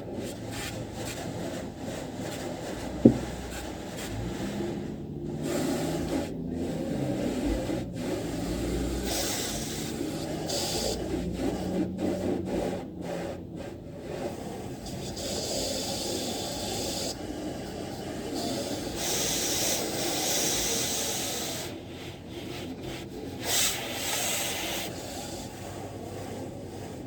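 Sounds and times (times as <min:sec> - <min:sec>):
wash equipment humming: 0:02.9 - 0:03.6
high-pressure spray wand hissing: 0:18.3 - 0:21.8, 0:23.4 - 0:25.6.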